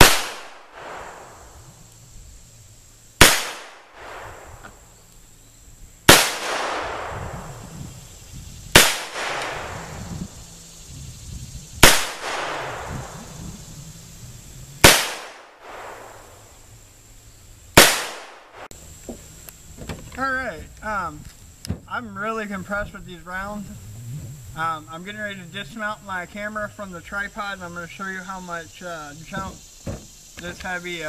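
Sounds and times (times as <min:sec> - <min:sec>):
revolver shots with echo: 0:00.0 - 0:01.4, 0:03.2 - 0:04.7, 0:06.1 - 0:07.7, 0:08.8 - 0:10.0, 0:11.8 - 0:13.3, 0:14.8 - 0:16.4, 0:17.8 - 0:18.7.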